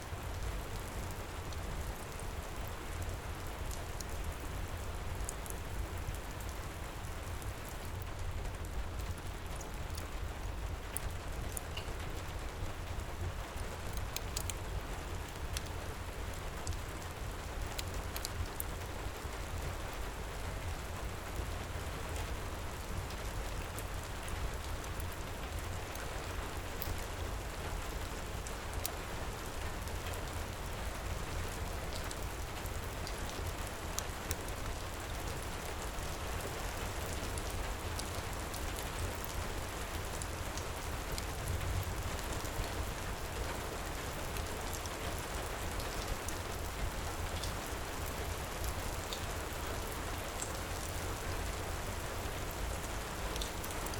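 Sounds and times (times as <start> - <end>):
heavy rain pouring: 0.1 - 53.9
wood fire crackling: 4.8 - 19.3.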